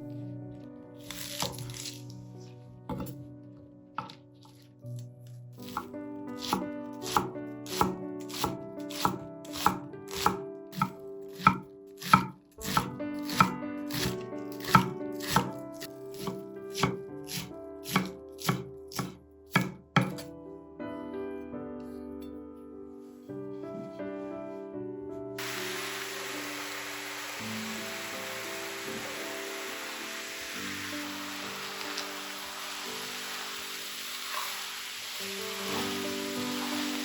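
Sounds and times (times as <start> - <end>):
soft background music: 0.0 - 34.1, 35.0 - 37.0
knife chopping on cutting board: 2.9 - 3.2, 5.6 - 20.3.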